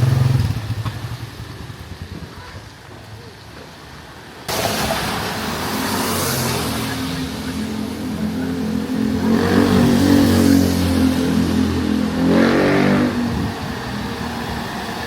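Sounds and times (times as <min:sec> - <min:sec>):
loud wash of noise: 0:04.3 - 0:15.0
vehicle engine running close by: 0:04.7 - 0:15.0.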